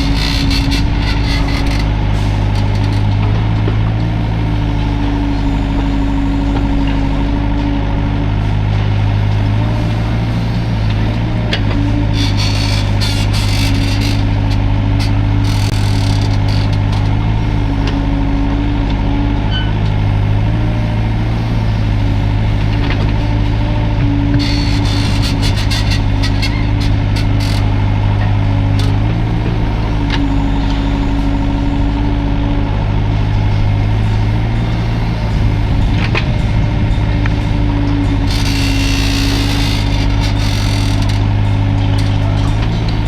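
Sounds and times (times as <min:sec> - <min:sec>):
rough scraping noise: 0:00.0 - 0:03.4, 0:24.3 - 0:27.8, 0:29.4 - 0:41.4
excavator diesel engine running: 0:00.0 - 0:43.0.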